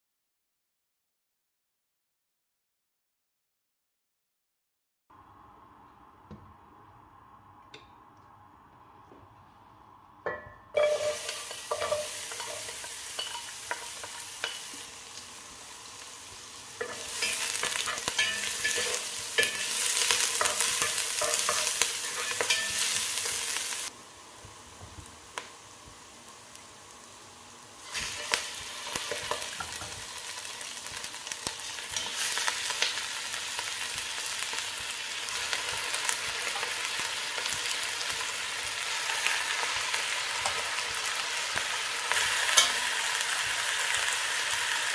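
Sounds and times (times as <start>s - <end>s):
onion sizzling in hot oil: 10.3s - 44.9s.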